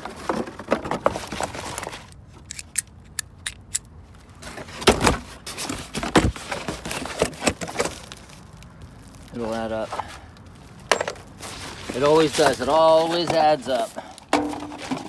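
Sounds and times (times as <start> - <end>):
metal parts clinking: 2.4 - 3.9.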